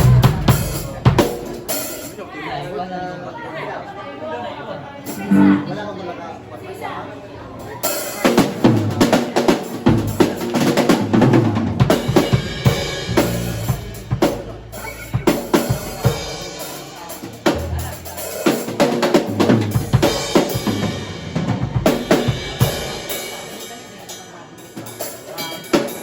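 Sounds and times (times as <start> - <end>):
drum kit playing: 5.1 - 5.9, 9.8 - 23.4
held low notes: 5.1 - 6.1.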